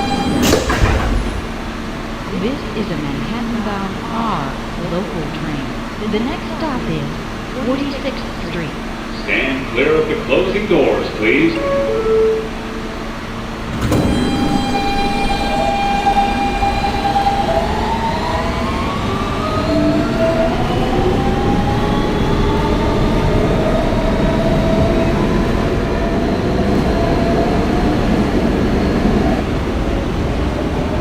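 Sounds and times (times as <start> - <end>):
train motors whining: 0.0 - 31.0
wheels rumbling on rail: 0.0 - 31.0.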